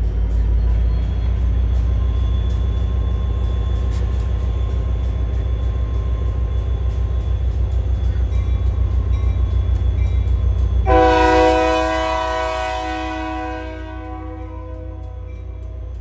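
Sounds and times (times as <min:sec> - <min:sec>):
diesel locomotive rumbling: 0:00.0 - 0:16.0
locomotive air horn chord: 0:10.8 - 0:15.4.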